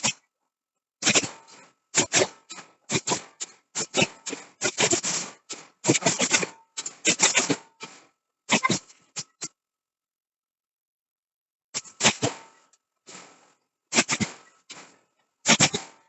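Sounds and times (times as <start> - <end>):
hammer blows on steel: 11.8 - 16.0.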